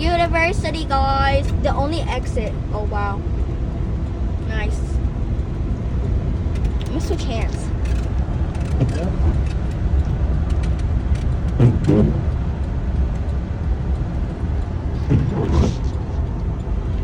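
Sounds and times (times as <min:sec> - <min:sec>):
car road and engine rumble: 0:00.0 - 0:17.0
faint voices: 0:11.6 - 0:12.2, 0:15.0 - 0:16.0.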